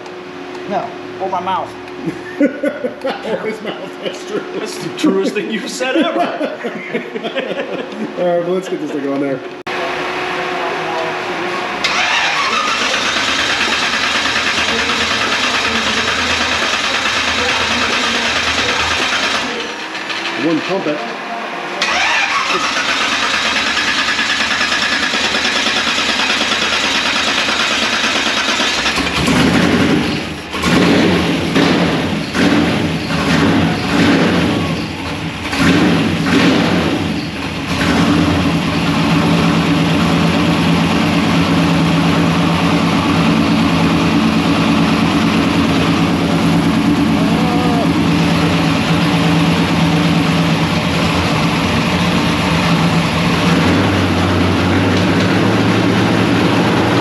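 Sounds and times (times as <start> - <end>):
truck engine cranking and idling: 11.8 - 21.2, 21.8 - 57.0.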